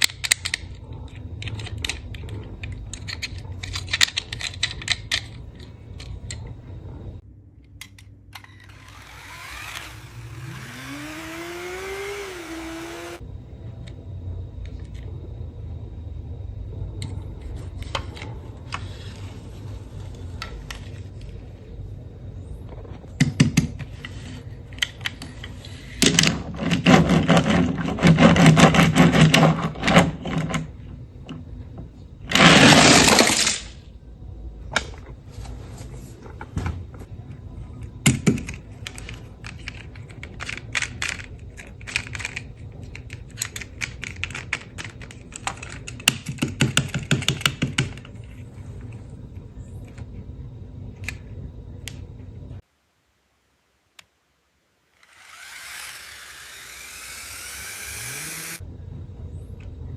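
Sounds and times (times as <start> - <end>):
plastic toy cars clattering: 0.0 - 7.0, 17.0 - 21.6, 22.6 - 33.9, 34.7 - 50.2.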